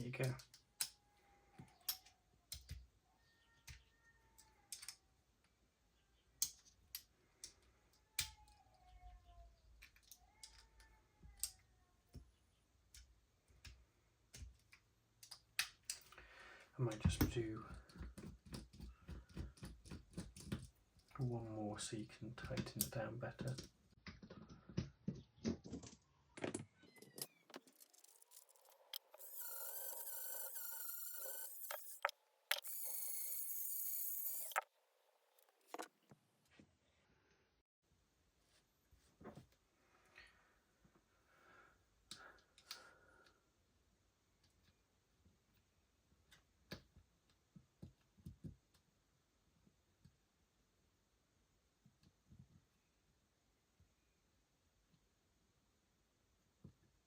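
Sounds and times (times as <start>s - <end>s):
small metal parts clicking: 27.1s - 34.6s.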